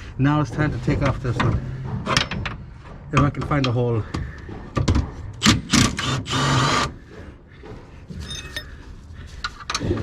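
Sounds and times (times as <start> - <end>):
tools clicking and clanking: 8.1 - 8.9
metallic ring: 8.2 - 8.8.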